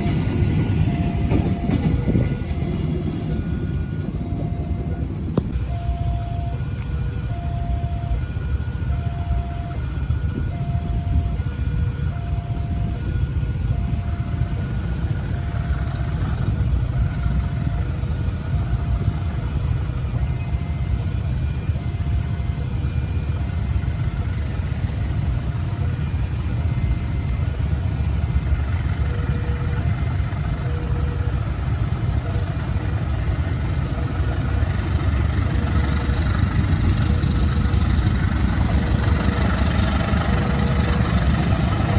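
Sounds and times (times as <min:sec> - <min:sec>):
two-tone crossing alarm ding: 0:00.0 - 0:16.1
vehicle engines idling: 0:00.0 - 0:41.9.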